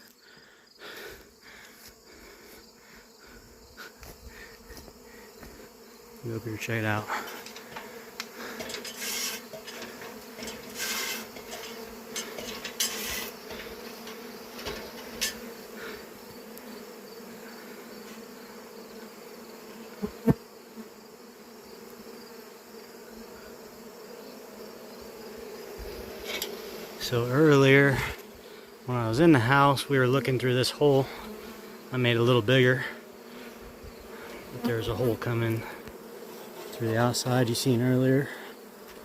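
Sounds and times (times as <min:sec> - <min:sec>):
honeybees buzzing: 0:00.0 - 0:39.0
rustling scrapes: 0:07.4 - 0:15.4.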